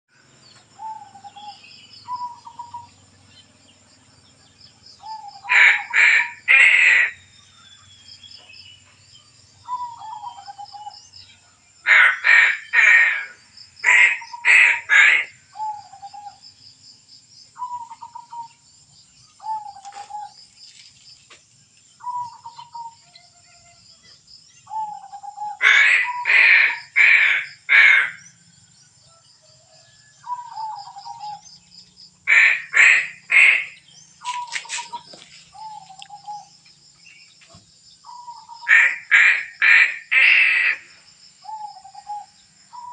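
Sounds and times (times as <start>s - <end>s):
crow cawing: 5.4s - 7.2s, 11.9s - 15.4s, 25.6s - 28.2s, 32.3s - 33.8s, 38.6s - 40.8s.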